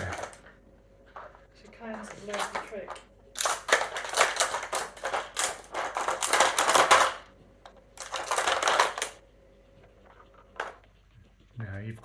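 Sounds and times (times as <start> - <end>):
puzzle toy rattling: 2.0 - 7.3, 8.0 - 9.2.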